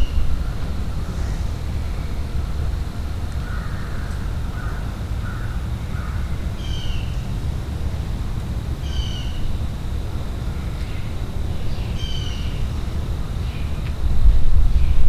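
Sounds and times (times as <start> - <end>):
low rumble: 0.0 - 15.0
birds making harsh calls: 11.8 - 12.7.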